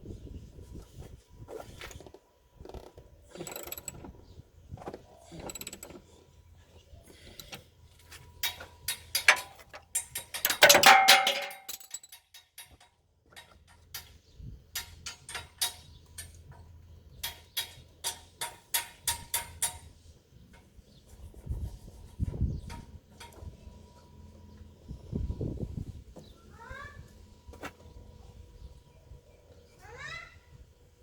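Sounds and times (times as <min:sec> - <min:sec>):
hand tools clicking and knocking: 0:07.2 - 0:20.7.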